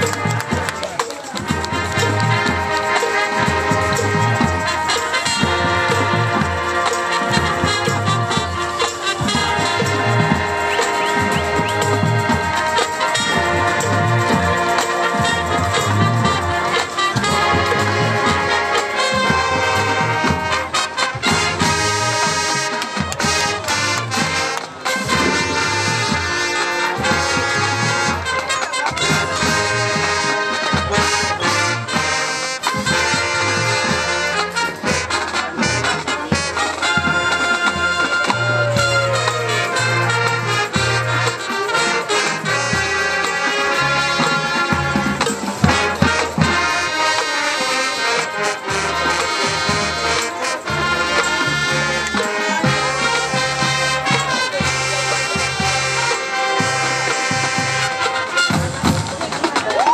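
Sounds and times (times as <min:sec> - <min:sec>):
marching band brass playing: 0:00.0 - 0:59.9
sharp drum hits: 0:25.1 - 0:26.4.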